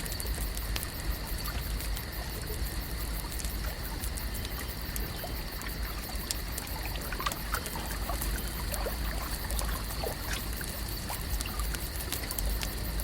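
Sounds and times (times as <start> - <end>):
water drips and plops: 0.0 - 13.0
lake water lapping at shore: 3.3 - 12.4.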